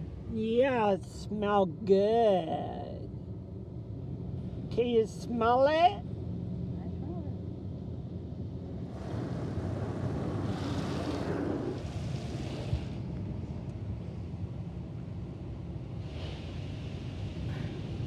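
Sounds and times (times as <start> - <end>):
car wash rumble: 8.3 - 13.6, 15.1 - 18.0.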